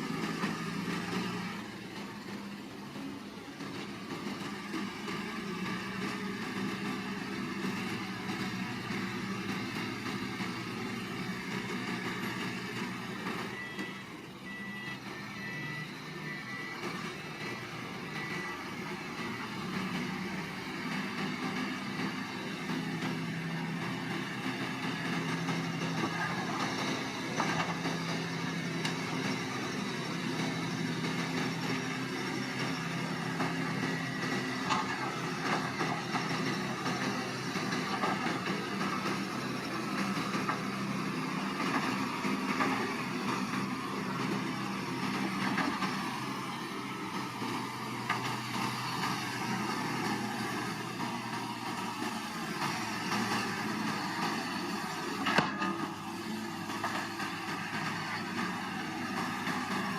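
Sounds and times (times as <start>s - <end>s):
diesel engine running: 0.0s - 59.9s
reversing alarm beeping: 9.7s - 41.2s.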